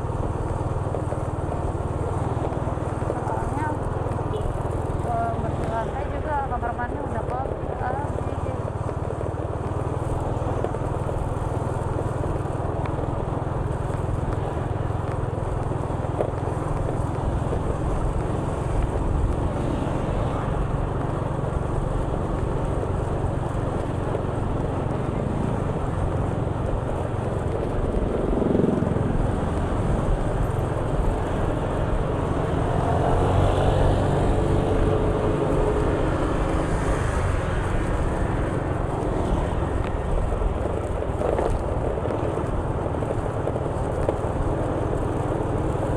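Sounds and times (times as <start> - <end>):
motorcycle engine rumble: 0.0 - 45.9
vehicle passing by: 31.4 - 40.2.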